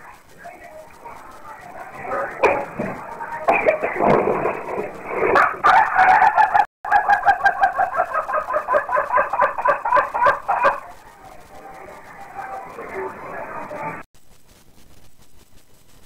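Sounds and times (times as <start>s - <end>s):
rooster crowing: 5.4s - 11.0s.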